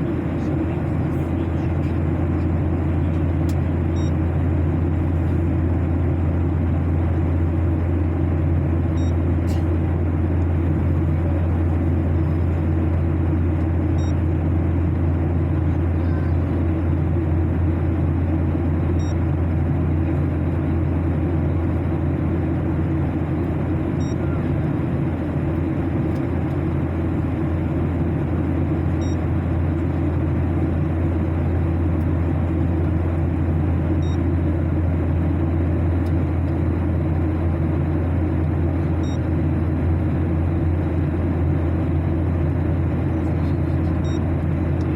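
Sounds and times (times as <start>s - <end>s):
aircraft engine drone: 0.0s - 44.9s.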